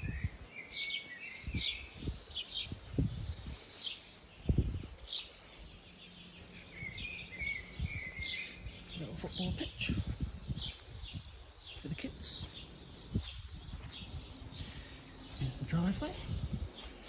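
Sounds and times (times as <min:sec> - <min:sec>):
birds chirping: 0:00.0 - 0:17.0
dull low thumps: 0:01.5 - 0:03.6, 0:04.4 - 0:05.0, 0:06.5 - 0:17.0.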